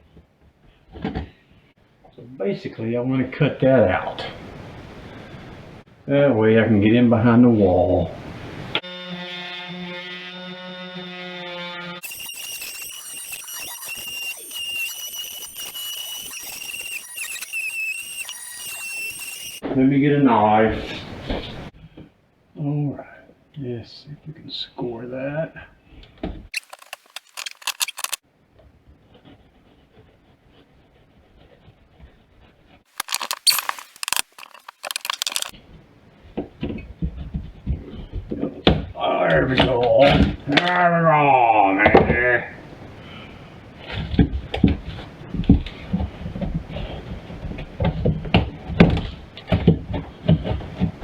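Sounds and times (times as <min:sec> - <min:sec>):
power tool cutting into wall: 0:12.0 - 0:19.6, 0:32.9 - 0:35.5.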